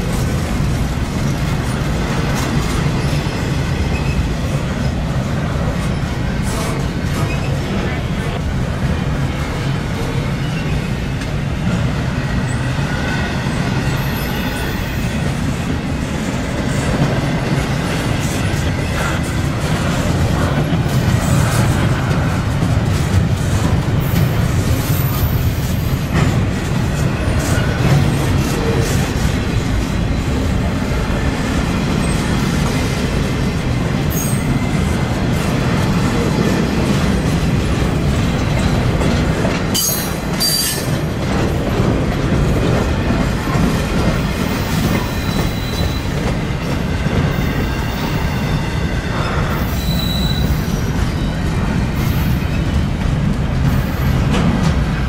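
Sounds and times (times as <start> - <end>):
train wheels rumbling and rattling: 0.0 - 55.0
wheel squeals: 44.6 - 46.2, 49.5 - 51.4.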